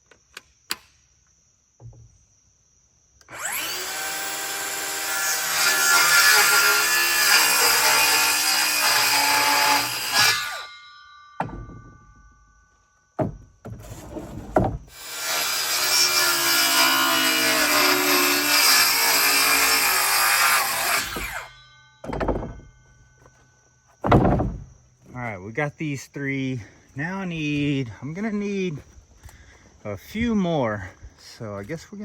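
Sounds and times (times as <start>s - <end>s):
power saw cutting wood: 3.2s - 10.7s, 14.9s - 21.6s
sharp wooden knocks: 11.4s - 12.0s, 13.2s - 13.8s, 22.0s - 22.7s, 24.0s - 24.7s.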